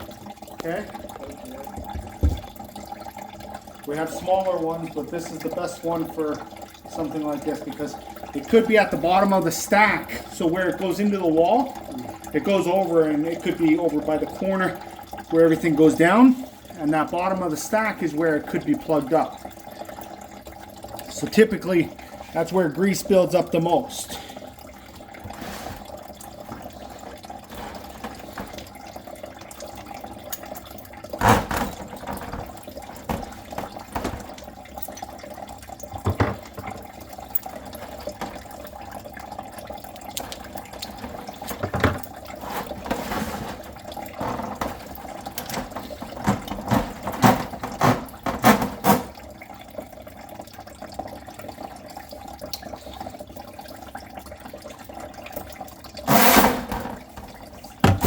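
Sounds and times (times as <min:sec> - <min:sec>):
water running in drain: 0:00.0 - 0:58.0
knocks and clanks: 0:25.2 - 0:28.8, 0:31.1 - 0:34.5, 0:35.9 - 0:38.5, 0:40.2 - 0:49.2, 0:56.1 - 0:58.0.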